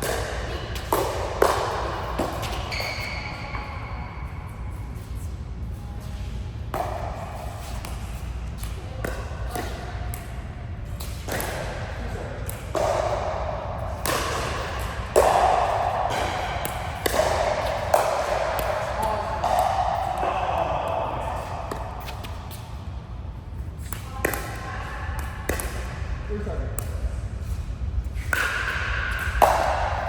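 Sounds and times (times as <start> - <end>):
voices echoing in a large hall: 0.0 - 28.1.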